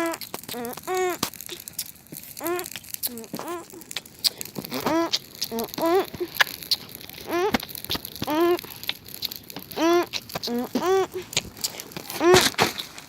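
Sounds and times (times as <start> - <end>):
campfire crackling and popping: 0.0 - 13.0
rising and falling pitched calls: 2.4 - 7.6.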